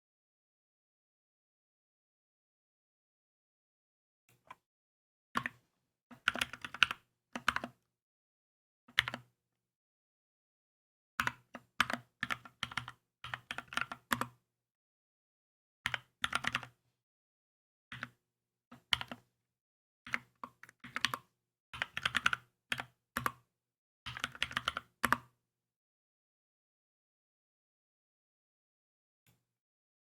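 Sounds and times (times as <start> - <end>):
mechanical keyboard typing: 6.2 - 7.7, 20.9 - 23.4.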